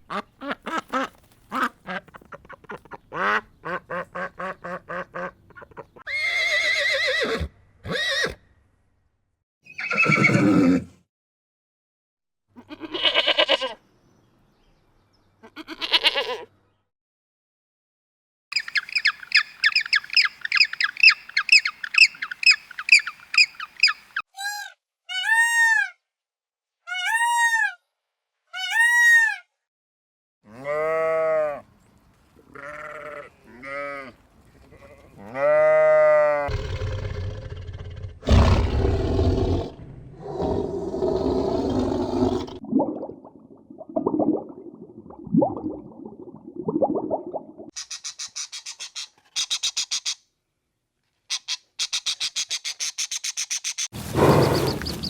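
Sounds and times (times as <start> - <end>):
animal and bird calls: 9.6 - 10.5, 18.6 - 24.2, 47.8 - 50.2, 51.3 - 55.0.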